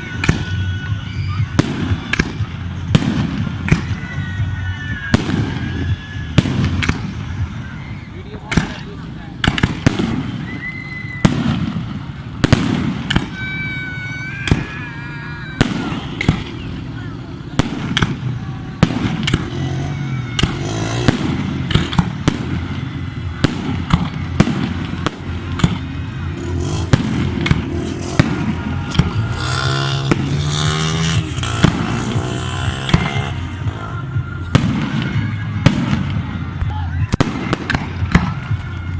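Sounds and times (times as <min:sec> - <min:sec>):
high whistling tone: 0:00.0 - 0:08.9, 0:10.1 - 0:11.4, 0:13.1 - 0:17.6
fireworks bangs: 0:00.0 - 0:38.9
low rumble: 0:15.5 - 0:38.9.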